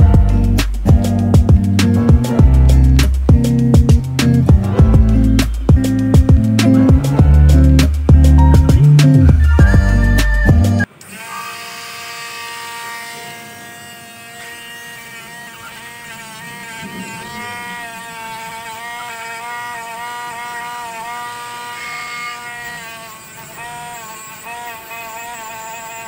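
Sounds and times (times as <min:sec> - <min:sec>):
loud music: 0:00.0 - 0:10.9
power tool motor whining: 0:05.1 - 0:26.0.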